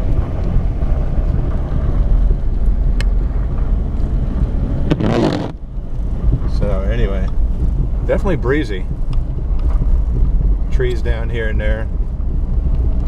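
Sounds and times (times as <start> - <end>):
rustling noise: 0.0 - 6.6
car driving rumble from inside: 0.0 - 13.0.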